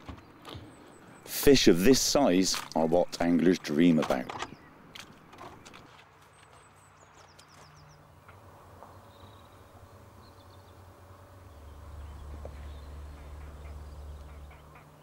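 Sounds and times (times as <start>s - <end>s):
small birds chirping: 2.2s - 15.0s
steady low hum: 7.8s - 15.0s.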